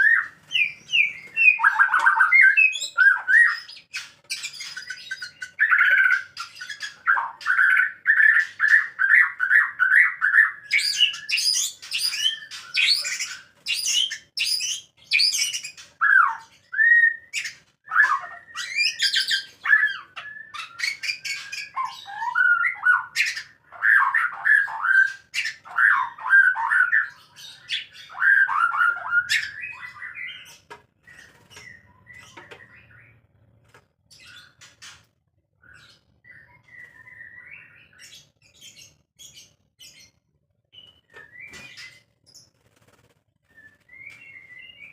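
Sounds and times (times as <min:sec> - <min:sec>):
birds calling: 0:00.0 - 0:40.1.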